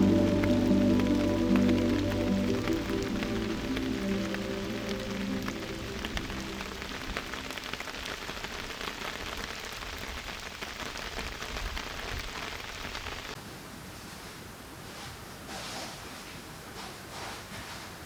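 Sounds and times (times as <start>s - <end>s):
rain falling: 0.0s - 13.4s.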